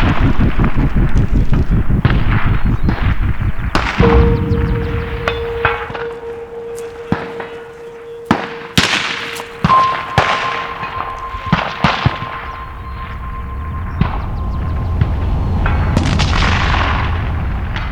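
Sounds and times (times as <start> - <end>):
steel plates ringing: 4.0 - 17.8.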